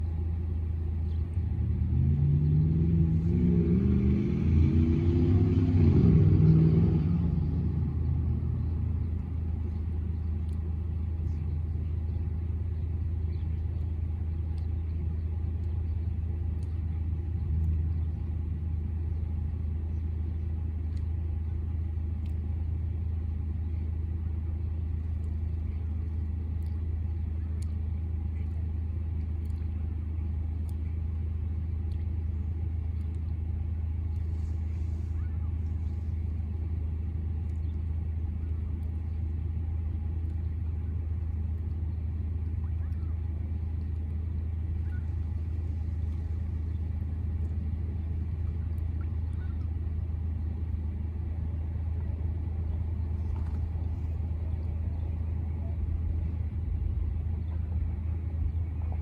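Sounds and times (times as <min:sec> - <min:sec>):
street traffic: 0:00.0 - 0:59.0
vehicle engine rumble: 0:00.0 - 0:59.0
vehicle passing: 0:01.5 - 0:09.5.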